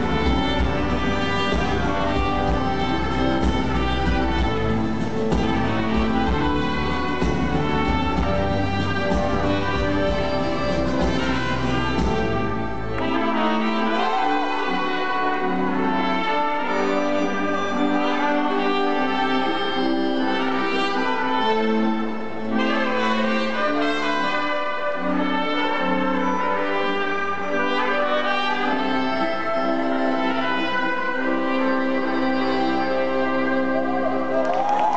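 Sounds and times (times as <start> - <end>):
deep bass: 0.0 - 12.9
live band playing: 0.0 - 34.9
trumpets playing melody: 0.0 - 34.9.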